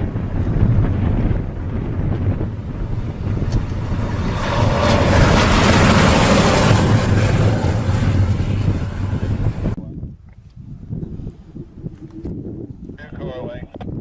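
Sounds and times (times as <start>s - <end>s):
train engine rumble: 0.6s - 9.8s.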